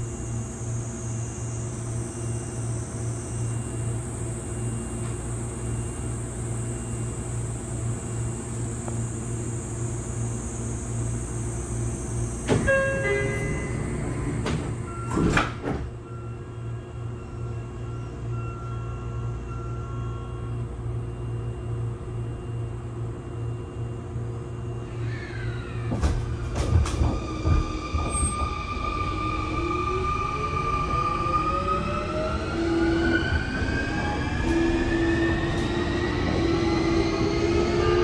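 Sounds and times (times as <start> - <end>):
train car steady hum: 0.0 - 38.0
train clunks: 12.4 - 16.2, 25.3 - 29.0
train door chime: 12.5 - 21.6
sliding doors closing with knock: 13.7 - 16.0, 25.8 - 28.4
traction inverter whine gliding down: 21.2 - 38.0.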